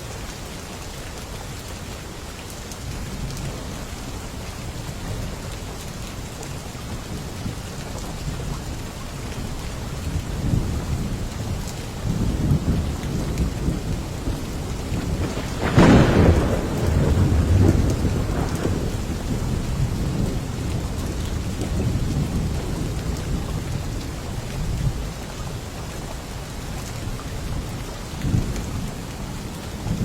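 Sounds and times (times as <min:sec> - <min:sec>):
heavy rain: 0:00.0 - 0:30.0
low rumble of thunder: 0:06.5 - 0:30.0
sharp thunderclap: 0:12.3 - 0:23.5.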